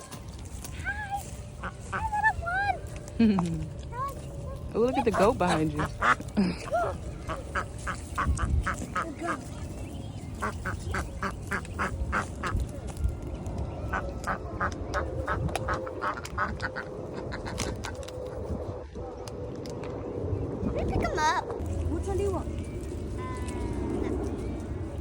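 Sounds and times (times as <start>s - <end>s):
ducks quacking: 1.6s - 2.5s, 5.0s - 9.7s, 10.4s - 12.6s, 13.9s - 18.0s.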